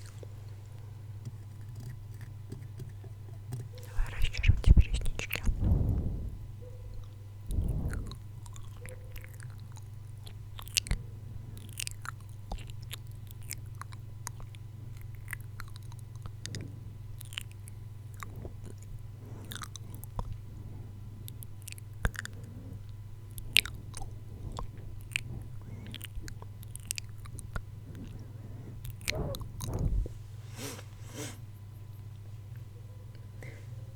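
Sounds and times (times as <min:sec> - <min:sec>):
steady low hum: 0:00.0 - 0:33.9
wet mouth clicks and smacks: 0:01.2 - 0:06.3, 0:11.6 - 0:20.4, 0:21.3 - 0:28.2.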